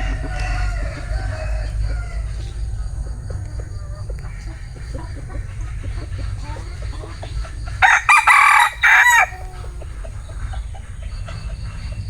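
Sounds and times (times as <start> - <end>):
rooster crowing: 0.0 - 3.0, 7.7 - 9.8
chickens clucking softly: 0.0 - 12.0.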